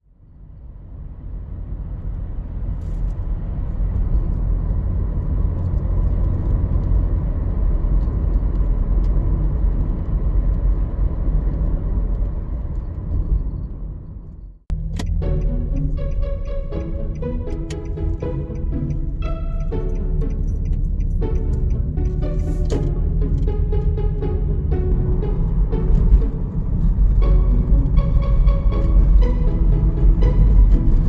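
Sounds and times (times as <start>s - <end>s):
music with a clear beat: 14.7s - 31.0s.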